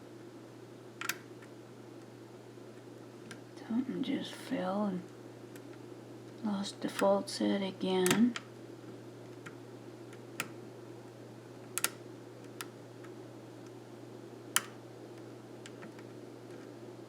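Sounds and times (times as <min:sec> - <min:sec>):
lock pick clicking in lock: 0:11.8 - 0:12.0.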